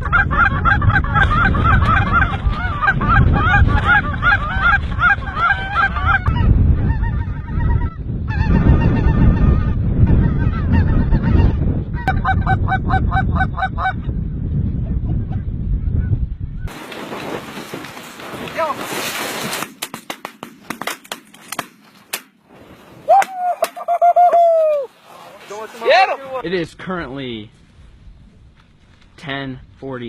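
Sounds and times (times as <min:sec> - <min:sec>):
geese honking: 0:00.0 - 0:14.0
low wind rumble: 0:00.0 - 0:19.1, 0:22.9 - 0:30.0.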